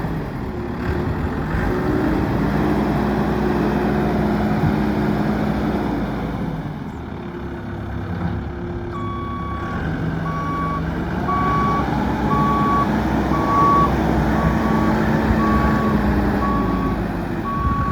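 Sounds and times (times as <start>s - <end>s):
backhoe diesel engine running: 0.0s - 17.9s
backup alarm beeping: 10.3s - 17.9s.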